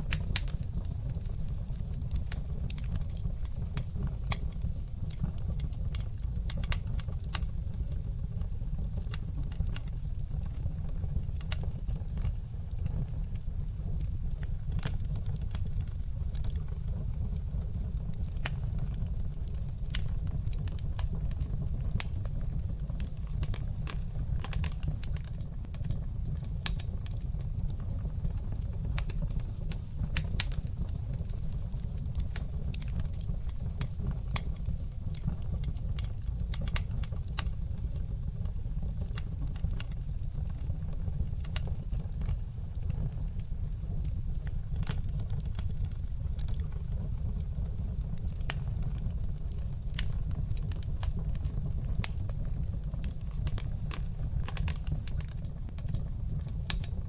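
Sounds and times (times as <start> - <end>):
fire crackling and popping: 0.0 - 57.0
fire flames rumbling: 0.0 - 57.0.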